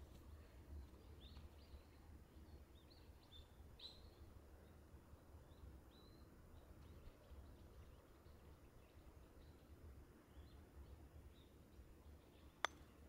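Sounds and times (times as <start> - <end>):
faint high bird chirps: 5.9 - 9.7.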